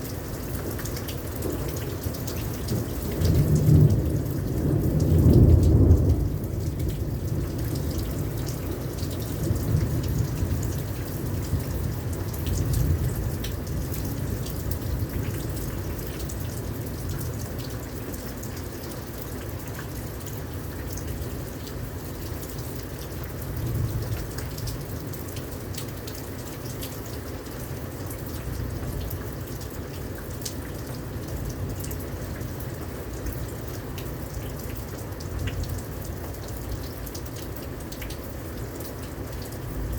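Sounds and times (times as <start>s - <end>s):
individual raindrops: 0.0s - 39.9s
rain pouring down: 0.0s - 39.9s
thunder rumbling: 2.7s - 8.4s.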